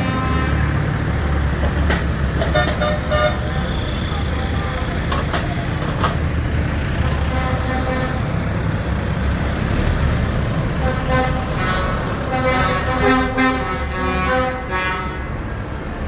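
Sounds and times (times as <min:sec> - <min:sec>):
vehicle horn: 0:00.0 - 0:00.9, 0:02.4 - 0:04.9, 0:07.1 - 0:08.4, 0:10.8 - 0:15.5
tractor and lorry engines rumbling: 0:00.0 - 0:16.0.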